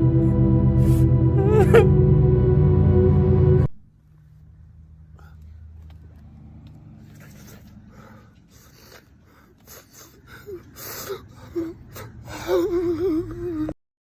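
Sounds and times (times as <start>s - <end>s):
wavering wail: 0.0s - 3.7s
man sobbing: 0.8s - 2.2s, 8.8s - 13.8s
gasping in-breaths: 7.0s - 13.0s
whimpering cries: 8.7s - 13.8s.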